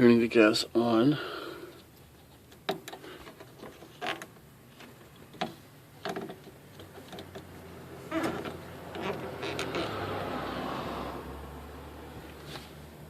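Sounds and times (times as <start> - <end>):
knocks and creaks of fittings: 1.8 - 11.0.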